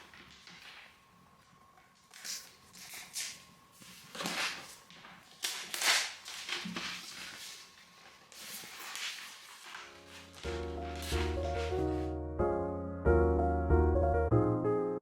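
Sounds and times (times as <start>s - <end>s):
packaging rustling and scraping: 2.1s - 12.1s.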